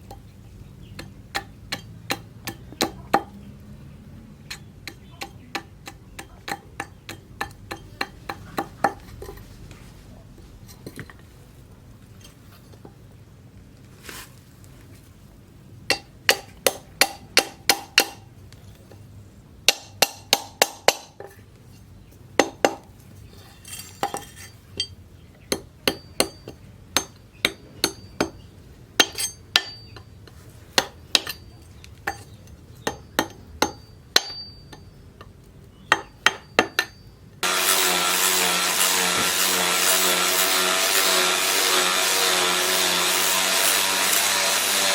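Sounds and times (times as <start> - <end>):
hammer striking steel: 1.0 - 3.4, 4.5 - 9.0, 15.9 - 18.3, 19.7 - 21.2, 23.8 - 28.4, 29.0 - 30.0, 30.8 - 34.9, 35.9 - 44.9
power tool humming: 37.4 - 44.9.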